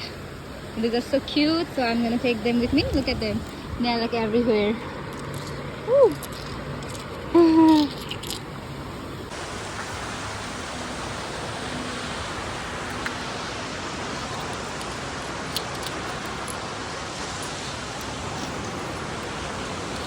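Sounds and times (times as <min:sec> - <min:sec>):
ocean surf on beach: 0:09.3 - 0:20.0.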